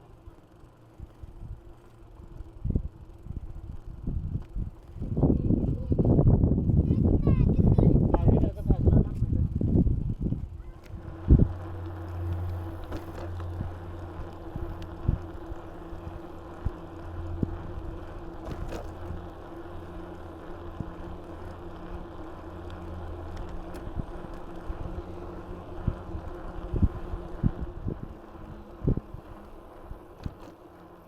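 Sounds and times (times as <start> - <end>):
bike tyres humming: 0.0 - 31.0
wind on microphone: 2.6 - 18.8, 23.7 - 30.4.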